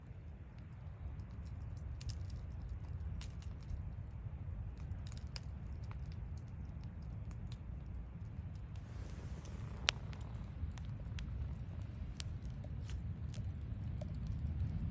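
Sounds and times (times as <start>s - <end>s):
campfire crackling and popping: 0.2s - 14.9s
low rumble: 8.8s - 14.9s.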